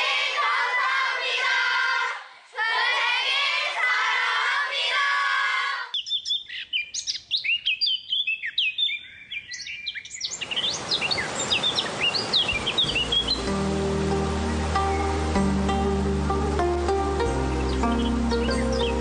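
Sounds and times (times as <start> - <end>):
birds chirping: 5.9 - 19.0.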